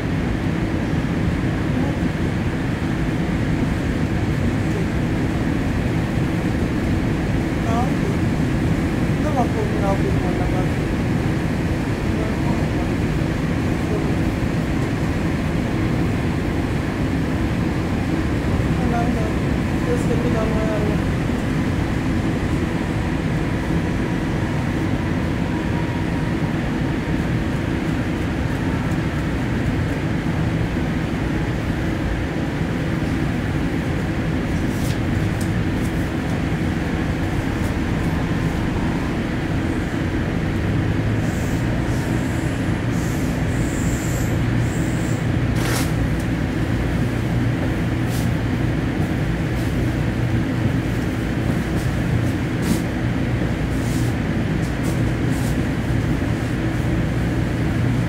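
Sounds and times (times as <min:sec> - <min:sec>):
train wheels rumbling on track: 0:00.0 - 0:58.0
low hum: 0:35.3 - 0:41.2.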